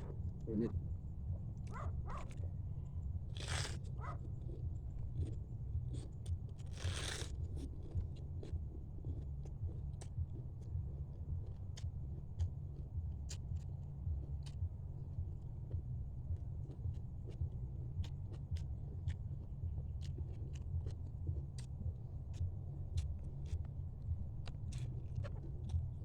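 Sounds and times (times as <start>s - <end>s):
steady low hum: 0.0s - 26.0s
person crunching food: 3.3s - 4.6s, 5.2s - 8.5s.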